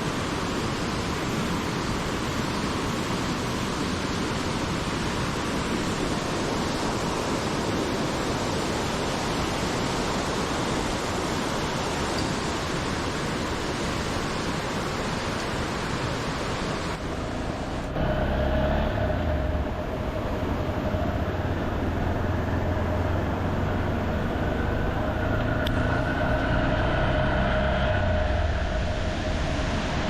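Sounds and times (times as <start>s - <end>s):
rushing mountain torrent: 0.0s - 30.0s
vehicle engine humming: 17.0s - 30.0s.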